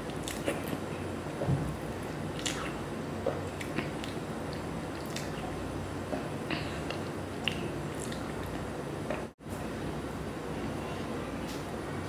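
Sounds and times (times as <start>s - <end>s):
low background hum: 0.0s - 12.0s
wet chewing: 2.0s - 5.5s, 6.9s - 8.7s
mouth smacks and clicks: 2.3s - 2.8s, 6.9s - 8.6s.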